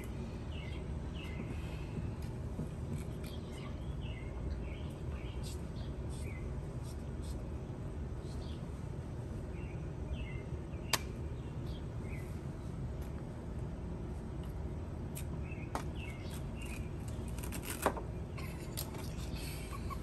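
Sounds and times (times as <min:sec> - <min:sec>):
birds chirping: 0:00.0 - 0:02.3, 0:03.0 - 0:07.4, 0:08.1 - 0:12.7, 0:15.2 - 0:17.4
low background rumble: 0:00.0 - 0:20.0.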